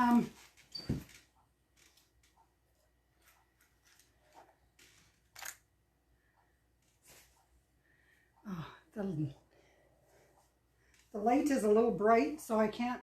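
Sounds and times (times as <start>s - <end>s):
faint clicks and rustles: 0.1s - 7.6s.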